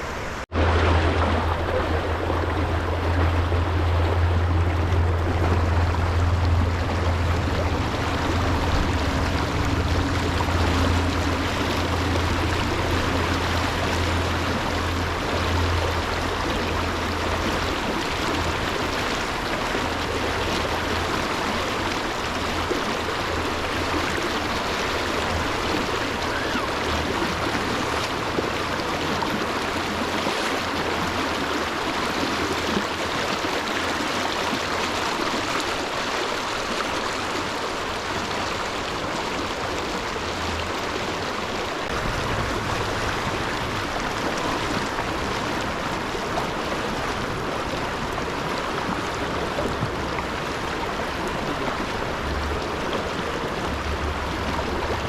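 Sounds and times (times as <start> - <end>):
stream water rushing and splashing: 0.0 - 55.0
low rumble: 0.6 - 29.9, 41.9 - 47.8.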